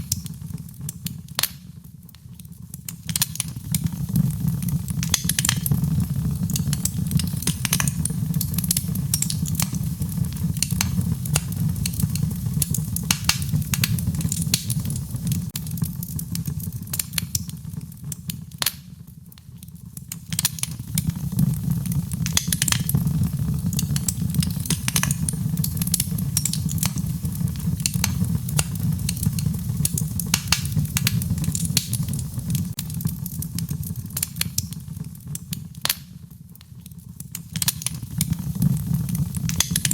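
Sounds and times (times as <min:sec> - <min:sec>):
fire crackling and popping: 0:00.0 - 0:39.9
low rumble of flames: 0:00.0 - 0:39.9.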